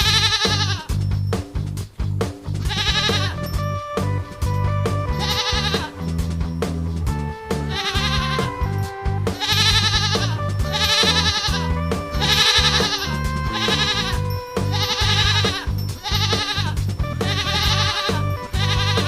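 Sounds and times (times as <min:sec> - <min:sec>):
goat bleating: 0:00.0 - 0:01.0, 0:02.6 - 0:03.7, 0:05.0 - 0:06.3, 0:07.6 - 0:19.0
cheerful background music: 0:00.0 - 0:19.0.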